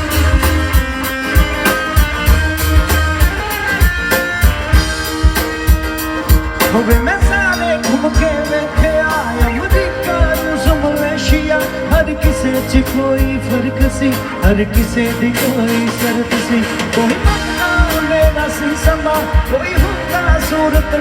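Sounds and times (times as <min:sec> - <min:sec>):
live band playing: 0:00.0 - 0:21.0
sliding melodic lead line: 0:00.0 - 0:21.0.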